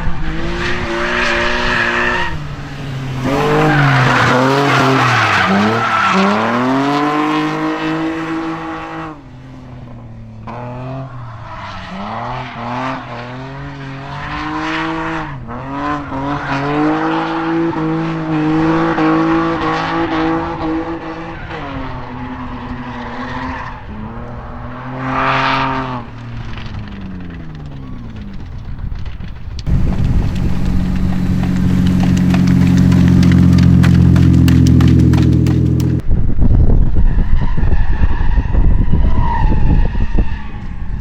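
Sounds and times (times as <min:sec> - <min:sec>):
car engine revving: 0:00.0 - 0:09.2, 0:29.7 - 0:36.0
tyres squealing: 0:01.3 - 0:06.8, 0:29.7 - 0:36.0.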